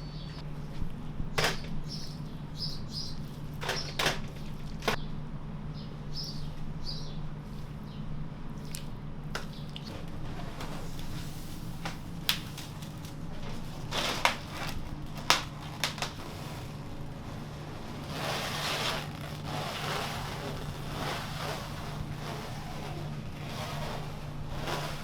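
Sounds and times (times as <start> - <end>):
steady low hum: 0.0 - 25.0
rustling and scraping: 8.6 - 25.0.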